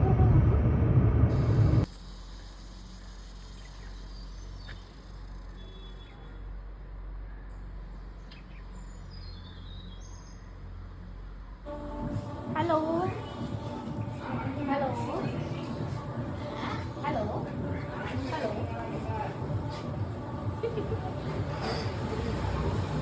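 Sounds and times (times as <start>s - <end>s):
loud low rumble: 0.0s - 1.9s
faint bird chirps: 2.8s - 6.4s.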